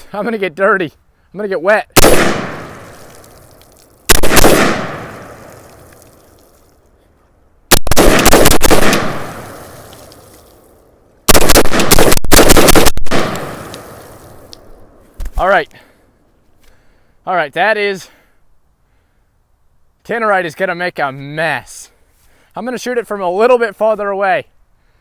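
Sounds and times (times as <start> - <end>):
gunshots ringing out: 2.0 - 3.2, 4.1 - 5.6, 7.7 - 9.9, 11.3 - 14.0.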